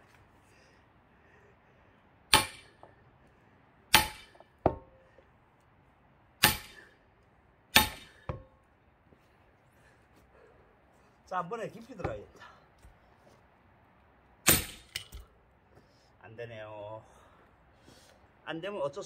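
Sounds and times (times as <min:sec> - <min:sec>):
metal striking axe into log: 0:02.3 - 0:02.9, 0:03.9 - 0:05.0, 0:06.4 - 0:06.9, 0:07.7 - 0:08.5, 0:14.4 - 0:15.2.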